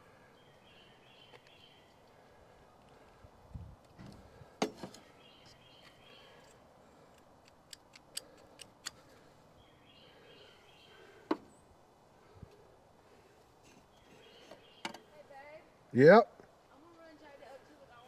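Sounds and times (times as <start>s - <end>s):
faint bird chirping: 0.0s - 3.2s, 4.4s - 7.2s, 8.2s - 15.8s.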